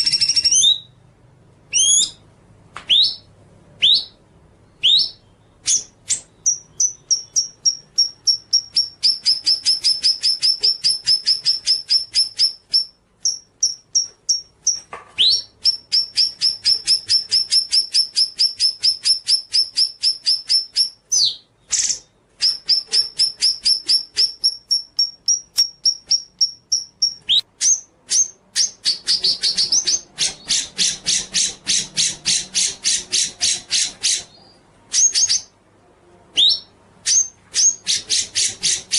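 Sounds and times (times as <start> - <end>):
bird whistled calls: 0.0 - 0.9, 1.7 - 2.2, 2.9 - 4.2, 4.8 - 14.1
songbird singing rapid notes: 2.9 - 35.5.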